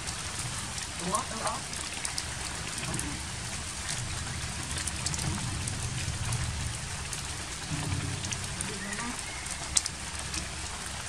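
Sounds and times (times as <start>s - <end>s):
rain on foliage: 0.0s - 11.0s
low rumble: 2.3s - 10.2s.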